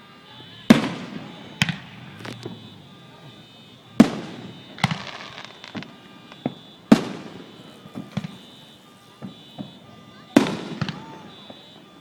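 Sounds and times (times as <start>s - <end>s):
firework booms: 0.6s - 11.8s
firework pops and crackles: 0.7s - 2.6s, 4.0s - 8.5s, 10.4s - 11.6s.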